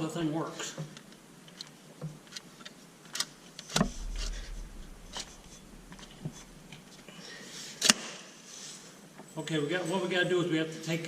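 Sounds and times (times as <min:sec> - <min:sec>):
low rumble: 0:03.8 - 0:07.2.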